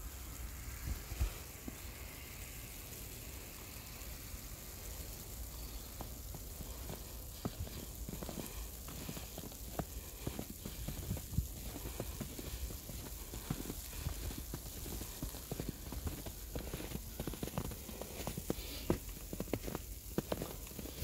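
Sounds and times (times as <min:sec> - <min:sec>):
footsteps crunching through snow: 0:04.8 - 0:21.0.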